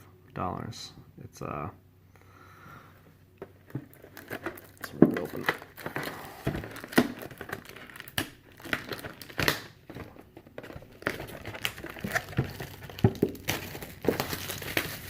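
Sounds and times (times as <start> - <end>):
packaging tearing and crinkling: 3.6 - 15.0.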